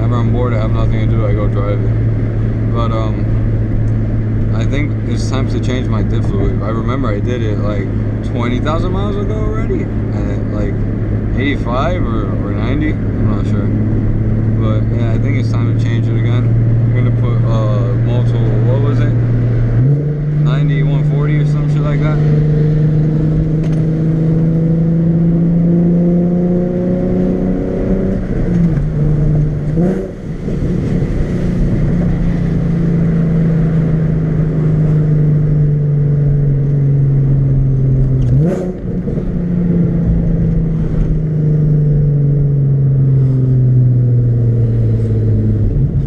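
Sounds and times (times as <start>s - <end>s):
car engine running with gear changes: 0.0s - 46.0s.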